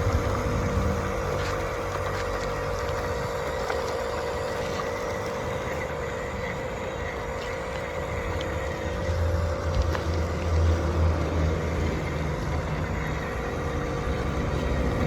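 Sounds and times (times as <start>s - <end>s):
model machine motor hum: 0.0s - 15.0s.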